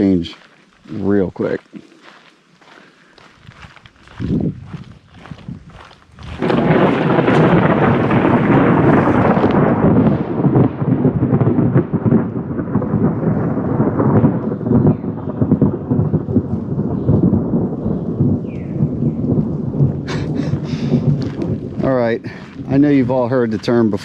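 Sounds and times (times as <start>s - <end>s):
close thunder rumbling: 5.4s - 24.0s.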